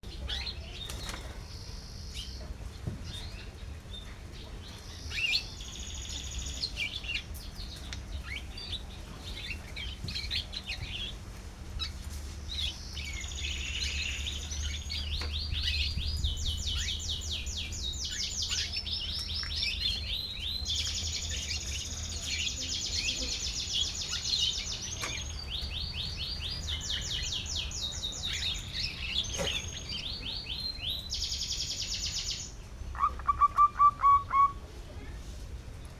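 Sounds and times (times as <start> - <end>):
canary singing trills: 12.6 - 34.6.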